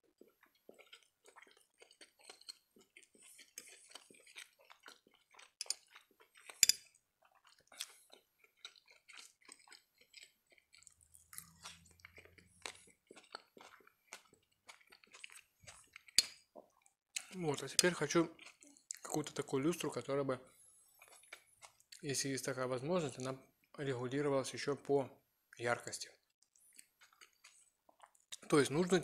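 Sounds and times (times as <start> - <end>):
chewing and wet mouth clicks: 0.0 - 19.9, 21.0 - 22.0, 26.4 - 28.5.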